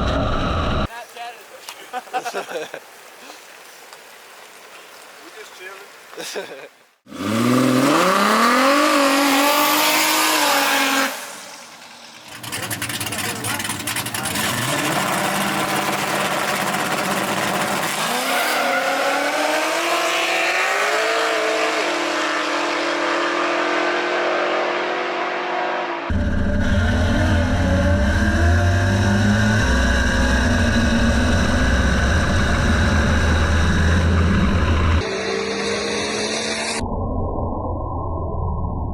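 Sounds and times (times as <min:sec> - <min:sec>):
race car engine at full throttle: 0:00.0 - 0:00.9, 0:07.1 - 0:36.8
rough clattering engine: 0:11.7 - 0:18.1.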